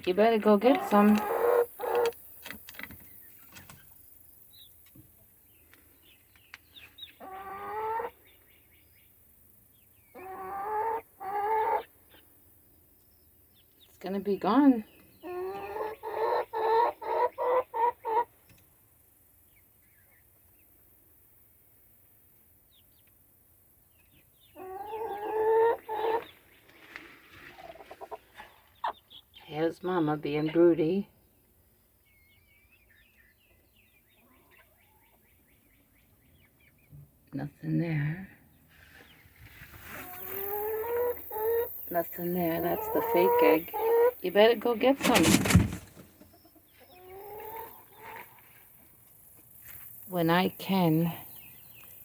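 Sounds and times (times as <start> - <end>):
chickens clucking: 0.0 - 2.4, 6.8 - 8.3, 10.2 - 12.3, 14.4 - 18.7, 24.5 - 26.5, 27.5 - 29.2, 39.0 - 48.6
chicken calling loudly: 0.8 - 2.1, 7.2 - 8.1, 10.2 - 11.9.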